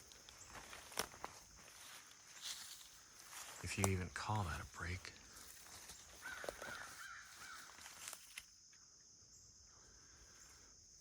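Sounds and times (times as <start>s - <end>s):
crows cawing: 5.8s - 8.0s.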